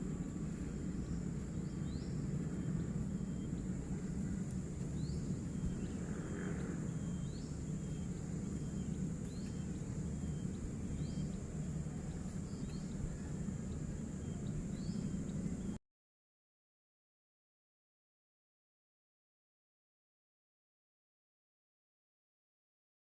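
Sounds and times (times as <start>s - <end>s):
high insect drone: 0.0s - 15.8s
low steady rumble: 0.0s - 15.8s.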